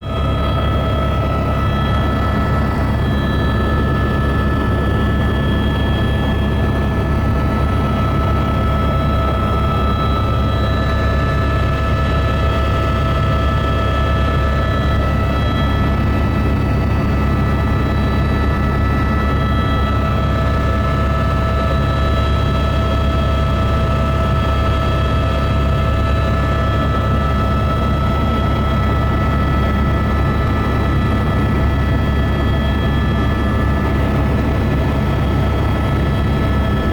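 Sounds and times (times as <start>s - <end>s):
helicopter rotor and engine drone: 0.0s - 36.9s.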